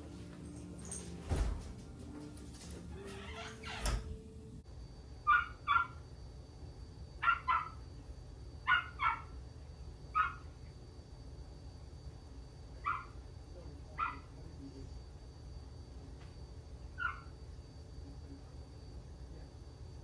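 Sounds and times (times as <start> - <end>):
dog barking: 5.2 - 6.0, 7.2 - 7.8, 8.6 - 9.4, 10.1 - 10.6, 12.8 - 13.2, 14.0 - 14.4, 17.0 - 17.4.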